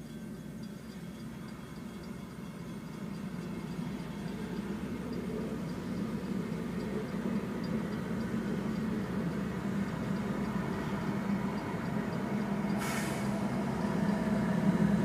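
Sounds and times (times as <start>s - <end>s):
diesel locomotive low hum: 0.0s - 15.0s
short hiss: 12.8s - 13.4s.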